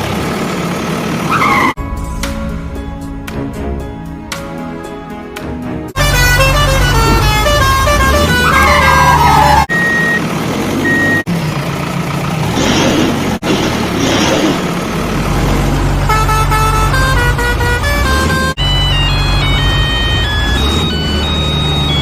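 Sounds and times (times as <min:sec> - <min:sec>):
heavy vehicle engines running: 0:00.0 - 0:22.0
vehicle horn tones: 0:06.0 - 0:09.7, 0:16.0 - 0:18.6.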